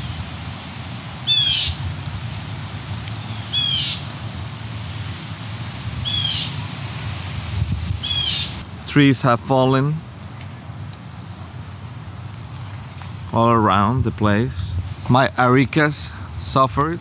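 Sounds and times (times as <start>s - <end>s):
steady outdoor hiss: 0.0s - 17.0s
bird calling high note: 1.2s - 1.8s, 3.2s - 4.1s, 6.0s - 6.6s, 8.0s - 8.6s.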